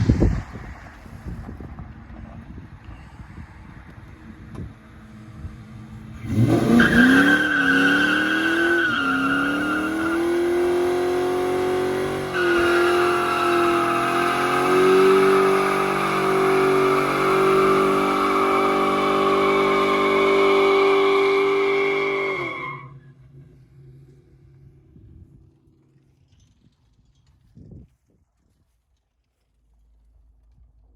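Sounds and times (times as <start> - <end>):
car engine revving: 5.7 - 22.9.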